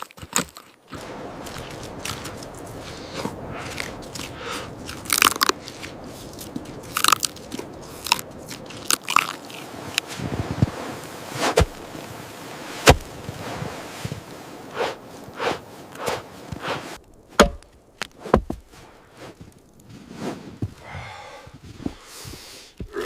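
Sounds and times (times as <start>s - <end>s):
sharp knocks and thuds: 12.8s - 13.1s, 16.1s - 18.7s.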